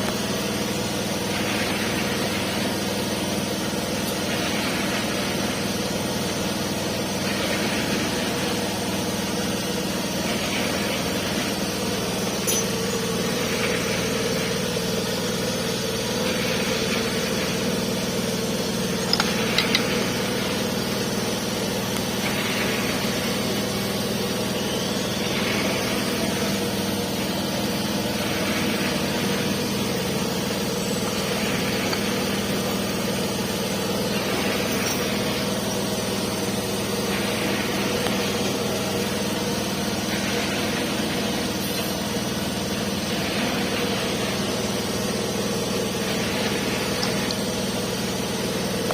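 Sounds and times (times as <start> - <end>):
machine humming: 0.0 - 48.9.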